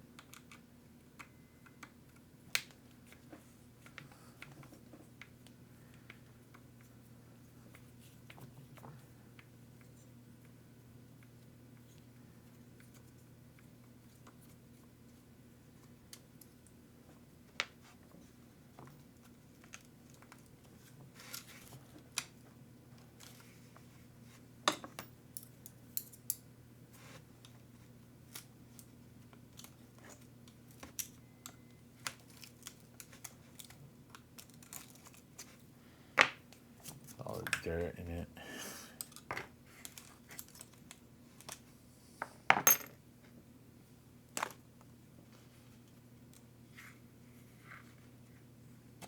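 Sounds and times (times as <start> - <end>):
faint steady hum: 0.0 - 49.0
small parts clicking and tapping: 0.1 - 6.9, 28.3 - 35.6, 39.0 - 41.6.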